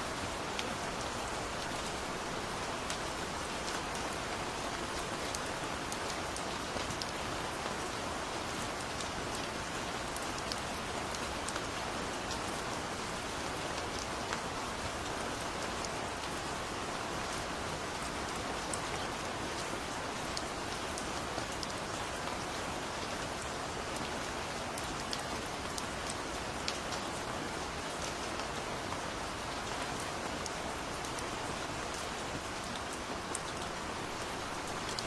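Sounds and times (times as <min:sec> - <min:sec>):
gentle rain hissing: 0:00.0 - 0:35.0.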